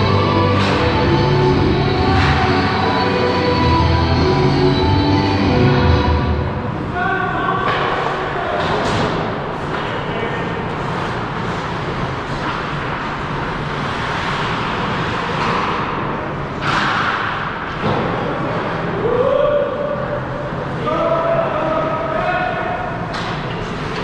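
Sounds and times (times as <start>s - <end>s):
ice rink noise: 0.0s - 24.0s
hockey sticks and puck knocking: 0.4s - 1.2s, 7.6s - 10.1s
hissing skate scrape: 9.6s - 15.9s.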